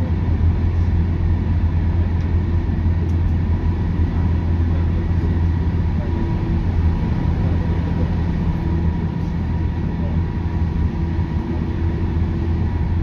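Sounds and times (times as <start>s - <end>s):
electric train rumbling: 0.0s - 13.0s
faint constant whine: 0.0s - 13.0s.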